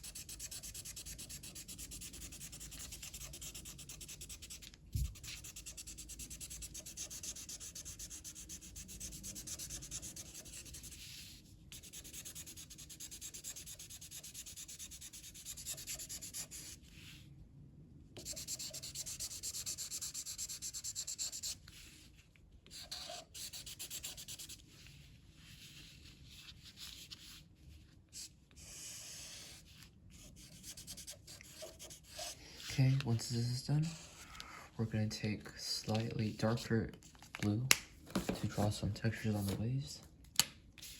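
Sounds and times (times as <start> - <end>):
colouring pencil shading on paper: 0.0 - 16.8, 18.2 - 21.6, 22.7 - 24.6, 28.2 - 33.0.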